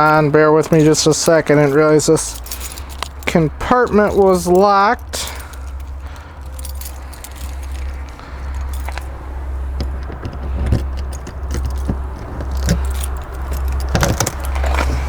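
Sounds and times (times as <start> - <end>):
keys jangling: 0.0 - 15.0
steady low rumble: 0.0 - 15.0
latch and door clicks: 9.8 - 14.9.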